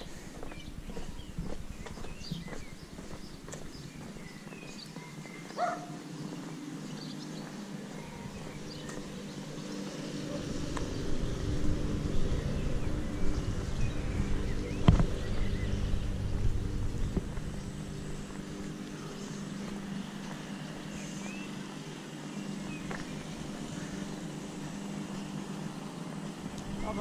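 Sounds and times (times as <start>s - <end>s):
footsteps on pavement: 0.0s - 27.0s
small birds chirping: 0.0s - 27.0s
low rumble: 8.0s - 20.4s.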